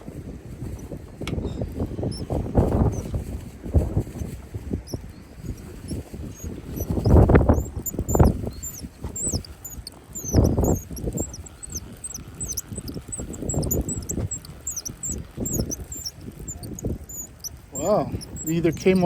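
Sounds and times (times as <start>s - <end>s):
wind buffeting microphone: 0.0s - 19.0s
quick high chirps: 4.9s - 19.0s.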